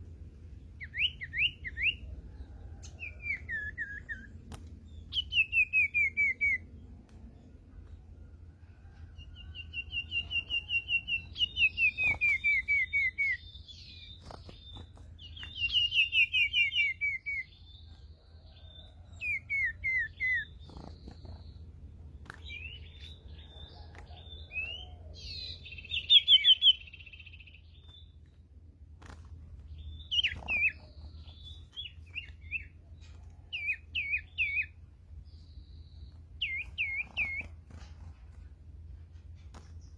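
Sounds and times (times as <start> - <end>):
bird calls with descending notes: 0.8 - 7.5, 22.4 - 28.1, 29.7 - 37.6.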